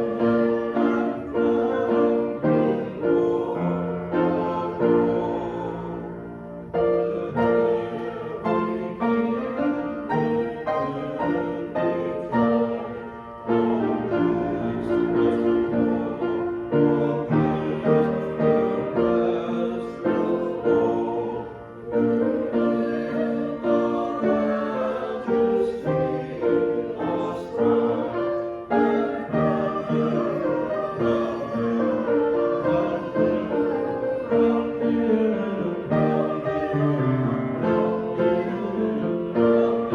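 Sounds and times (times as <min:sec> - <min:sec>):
piano accompaniment: 0:00.0 - 0:39.9
voices singing a hymn: 0:00.0 - 0:39.9.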